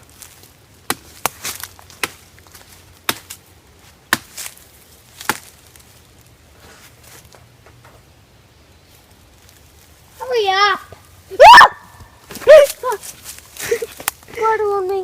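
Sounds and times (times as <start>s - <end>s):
dry wood cracking: 0.0s - 6.4s, 12.0s - 15.0s.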